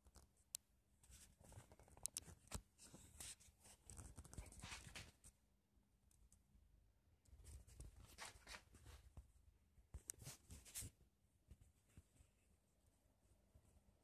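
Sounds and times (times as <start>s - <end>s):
rustling: 7.4s - 9.2s.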